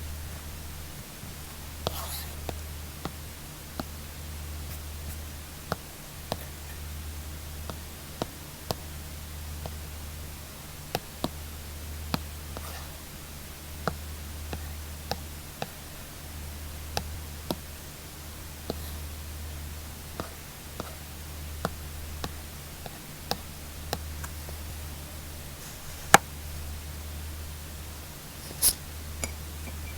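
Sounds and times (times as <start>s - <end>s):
steady low hum: 0.0s - 29.9s
stylus tip scratching: 28.4s - 29.9s
stylus tapping on screen: 28.5s - 29.9s.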